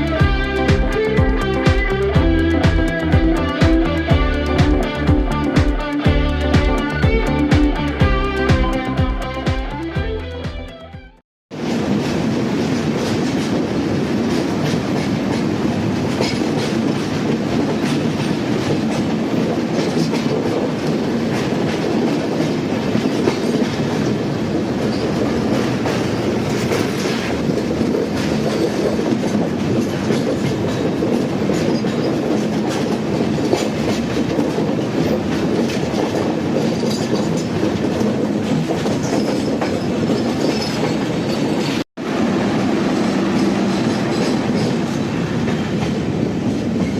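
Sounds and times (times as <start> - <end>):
train rumbling along track: 0.0 - 10.4, 11.5 - 46.9
wheels clattering over rail joints: 24.8 - 41.8, 42.9 - 46.9.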